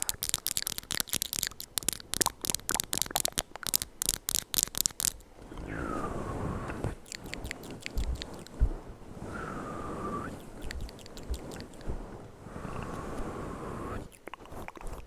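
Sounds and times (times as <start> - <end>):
wet mouth clicks and pops: 0.0 - 5.2, 7.0 - 8.5, 10.6 - 11.9, 14.1 - 15.0
breathy hiss: 4.3 - 15.0.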